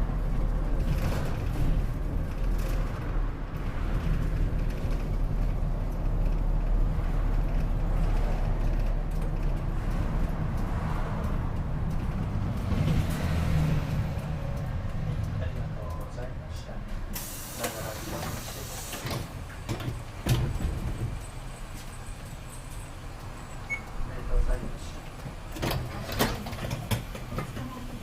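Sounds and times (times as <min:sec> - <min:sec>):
bus engine and road rumble: 0:00.0 - 0:28.0
short hiss: 0:17.2 - 0:19.0.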